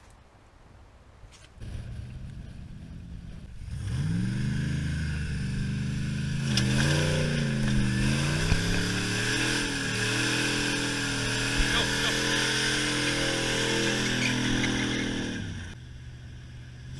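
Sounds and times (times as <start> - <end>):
car engine revving: 1.6 - 15.8.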